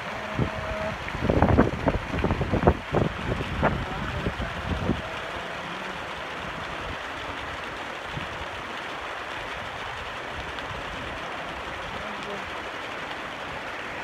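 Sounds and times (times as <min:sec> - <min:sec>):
wind buffeting microphone: 0:00.0 - 0:05.4
heavy rain falling: 0:00.0 - 0:14.0.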